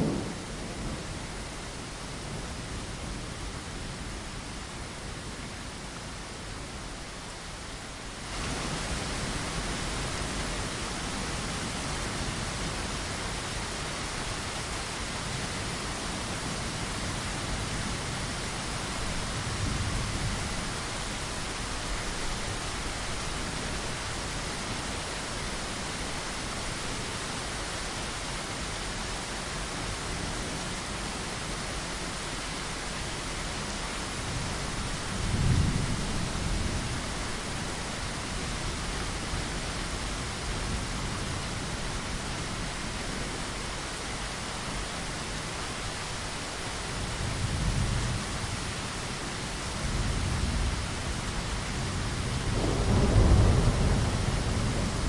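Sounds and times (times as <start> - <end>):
thunder rumbling: 0.0 - 1.3, 52.0 - 55.0
rain against a window: 0.0 - 55.0.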